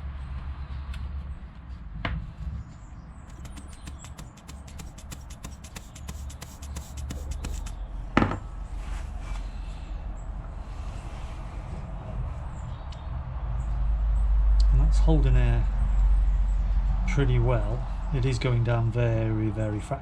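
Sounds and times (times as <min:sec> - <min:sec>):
sharp knock: 0:03.3 - 0:07.7
steady low hum: 0:03.3 - 0:07.8.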